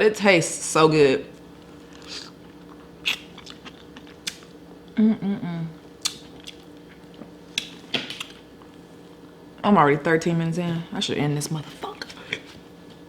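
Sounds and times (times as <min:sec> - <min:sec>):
chewing: 0:01.8 - 0:04.6, 0:06.0 - 0:08.8
person humming: 0:05.0 - 0:05.8.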